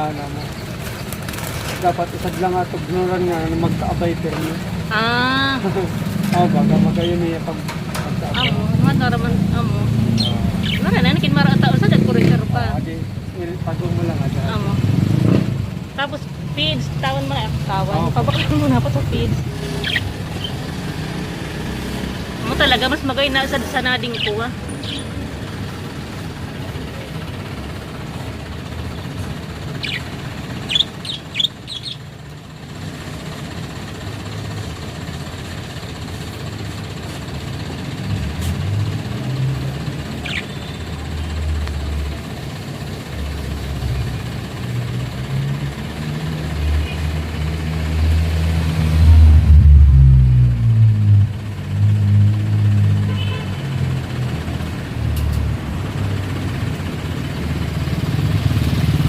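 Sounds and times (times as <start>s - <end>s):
vehicle engine rumble: 0.0s - 59.0s
high bird chirps: 8.2s - 8.7s, 9.9s - 11.2s, 19.5s - 21.2s, 24.0s - 25.2s, 29.7s - 32.1s, 40.2s - 40.9s.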